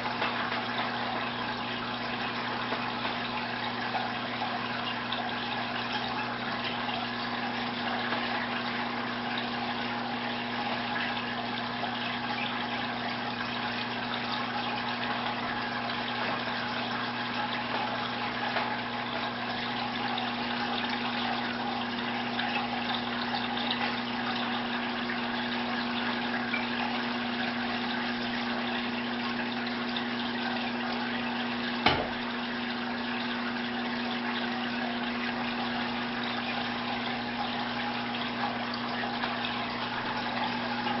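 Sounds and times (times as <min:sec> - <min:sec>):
water bubbling and splashing: 0:00.0 - 0:41.0
sharp knock: 0:31.8 - 0:32.2.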